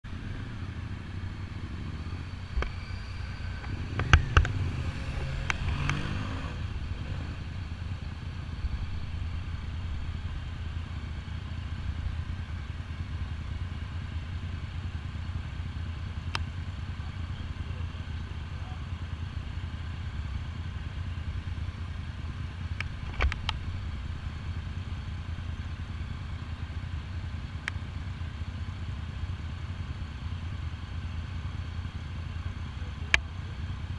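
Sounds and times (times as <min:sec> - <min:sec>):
motorcycle engine idling: 0:00.0 - 0:33.9
sharp clicks and knocks: 0:03.6 - 0:06.1, 0:22.8 - 0:23.6.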